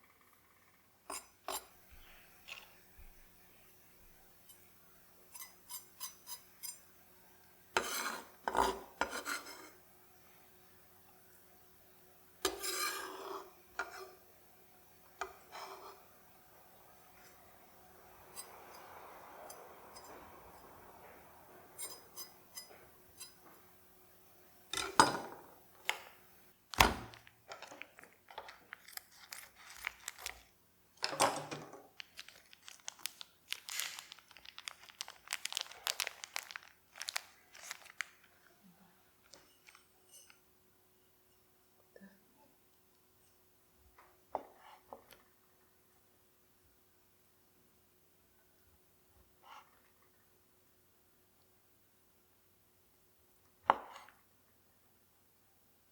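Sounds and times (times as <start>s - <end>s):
faint steady hum: 0.0s - 55.9s
utensils and cookware clattering: 21.7s - 23.4s, 24.7s - 25.4s.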